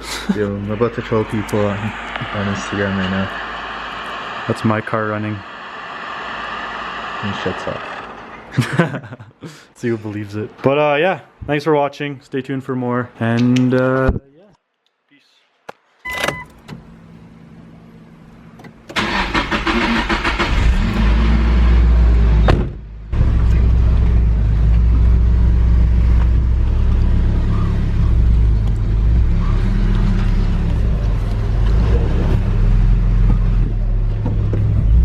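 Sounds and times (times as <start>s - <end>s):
car engine starting and running: 0.0s - 8.9s, 16.1s - 35.0s.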